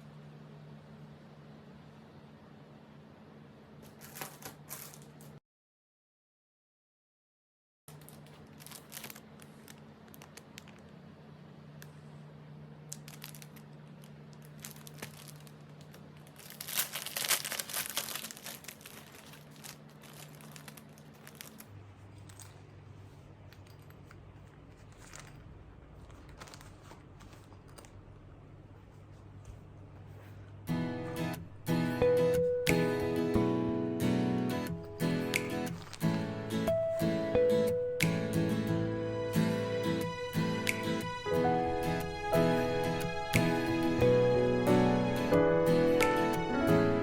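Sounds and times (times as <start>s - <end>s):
crinkling and rustling: 3.8s - 5.4s, 7.9s - 11.1s, 12.8s - 31.3s, 34.8s - 37.0s
faint steady hum: 7.9s - 47.0s.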